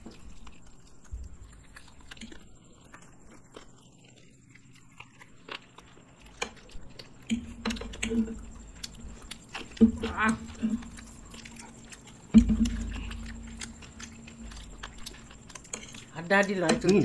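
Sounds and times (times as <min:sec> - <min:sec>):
people chewing food: 0:00.0 - 0:17.0
mouth clicks: 0:06.4 - 0:17.0.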